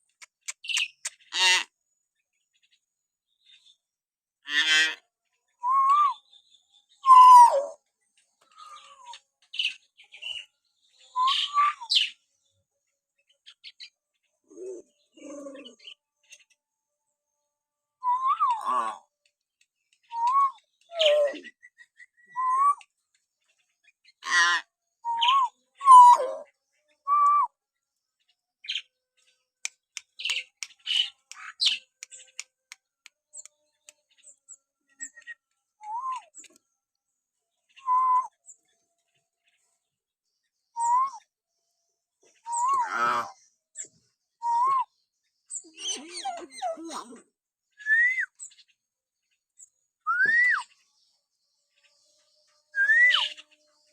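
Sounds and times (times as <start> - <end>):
harsh rasping bird calls: 0.1 - 1.8, 4.4 - 5.1, 13.4 - 16.6, 24.0 - 26.5, 28.6 - 28.9, 29.6 - 35.2, 42.2 - 43.9
myna whistling: 7.0 - 7.8, 22.4 - 22.8, 25.1 - 26.3, 37.8 - 38.3, 40.8 - 41.2, 44.4 - 44.9, 47.8 - 48.4, 50.1 - 50.6, 52.8 - 53.3.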